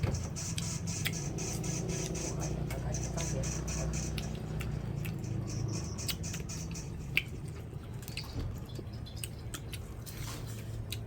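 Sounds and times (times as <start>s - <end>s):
steady low hum: 0.0s - 11.0s
crunching of eating: 4.0s - 11.0s.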